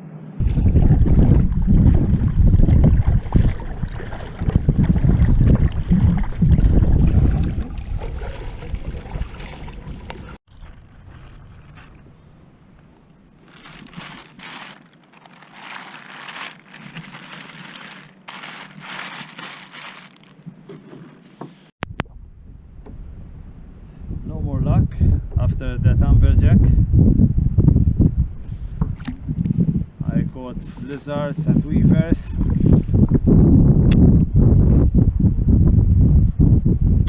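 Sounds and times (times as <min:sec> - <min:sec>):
wind buffeting microphone: 0:00.4 - 0:12.6, 0:22.0 - 0:37.0.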